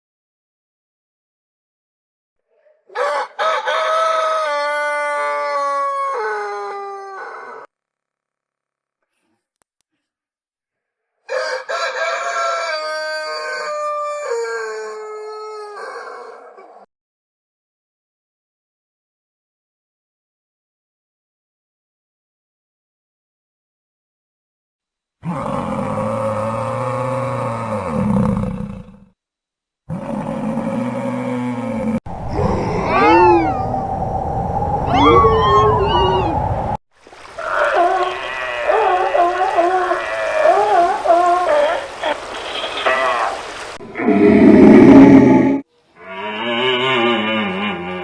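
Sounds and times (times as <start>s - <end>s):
rooster crowing: 2.9s - 6.0s, 11.3s - 14.9s, 32.1s - 36.8s
large animal roaring: 25.2s - 29.1s, 29.9s - 36.8s, 43.8s - 48.0s.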